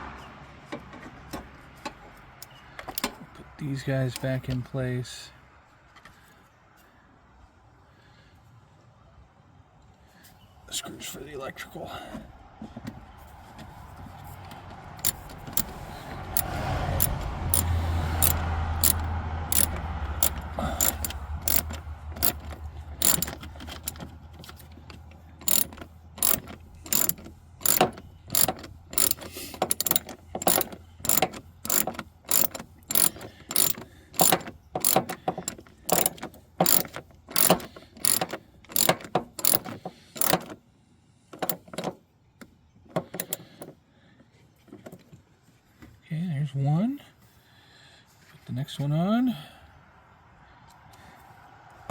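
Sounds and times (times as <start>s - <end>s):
hand ratchet clicking: 15.0s - 40.6s, 41.4s - 41.9s, 43.0s - 43.7s.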